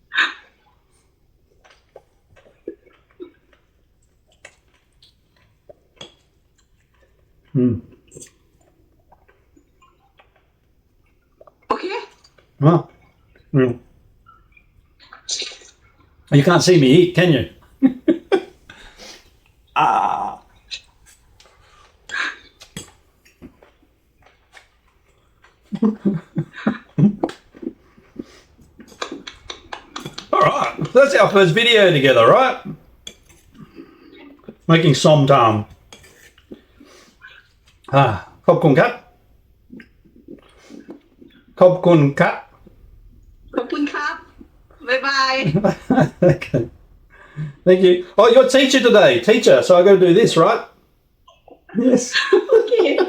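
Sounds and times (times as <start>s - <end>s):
crunchy chewing: 0.3s - 13.5s, 18.4s - 31.0s.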